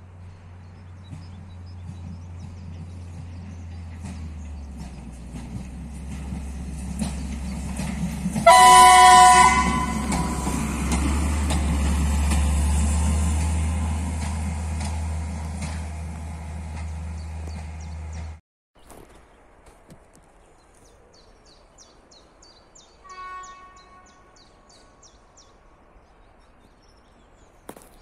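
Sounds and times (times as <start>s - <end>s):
train rumbling on rails: 0.0s - 18.4s
train horn two-note chord: 8.4s - 10.6s.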